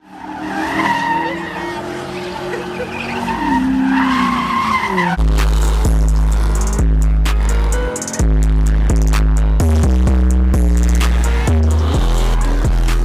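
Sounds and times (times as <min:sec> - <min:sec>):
car tires squealing: 0:00.0 - 0:06.6, 0:11.2 - 0:13.0
car engine running: 0:00.0 - 0:13.0
music with heavy bass: 0:05.0 - 0:13.0.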